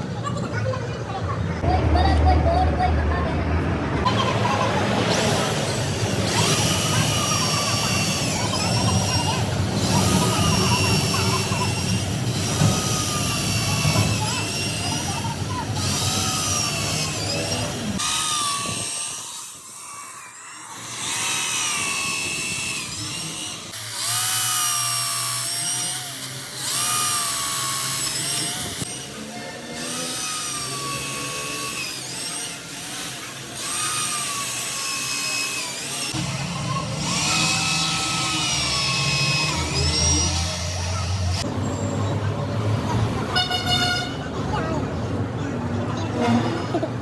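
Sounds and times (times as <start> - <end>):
electric power tool whining: 4.7 - 41.5.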